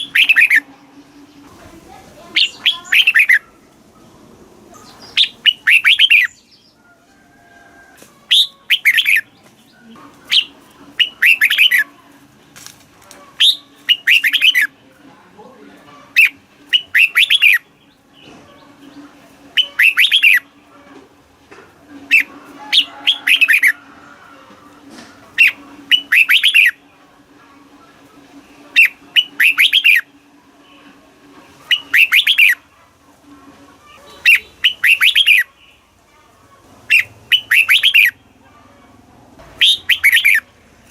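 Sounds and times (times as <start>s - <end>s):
bird warbling song: 0.0s - 3.7s, 4.7s - 6.9s, 8.3s - 11.9s, 13.2s - 14.7s, 16.0s - 20.6s, 22.0s - 23.8s, 25.3s - 26.8s, 28.6s - 30.9s, 31.6s - 32.6s, 33.8s - 36.0s, 36.8s - 38.4s, 39.6s - 40.9s.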